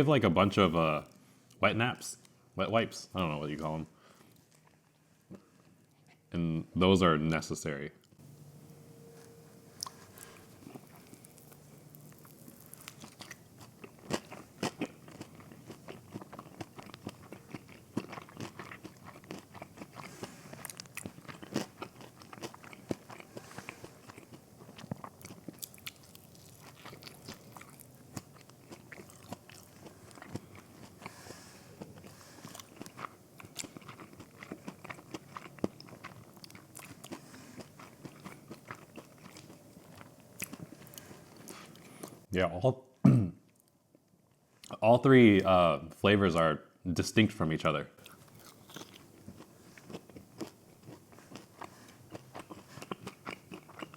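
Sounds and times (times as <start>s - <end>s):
crunchy chewing: 9.2s - 42.3s, 48.0s - 53.9s.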